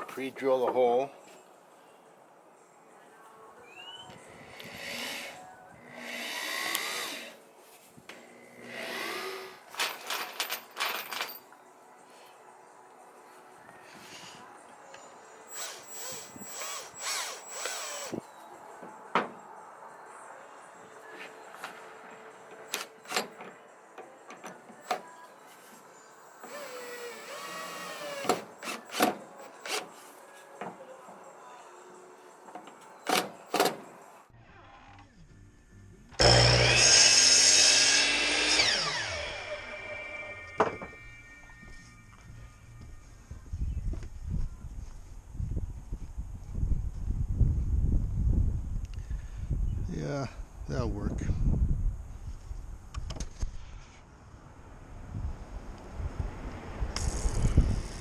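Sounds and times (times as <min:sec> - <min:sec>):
power drill whirring: 0:04.1 - 0:07.4, 0:08.1 - 0:10.5, 0:15.5 - 0:18.2, 0:22.7 - 0:23.5, 0:26.1 - 0:30.1, 0:32.6 - 0:34.0, 0:36.2 - 0:40.6
wooden knocks and clatter: 0:18.8 - 0:19.4.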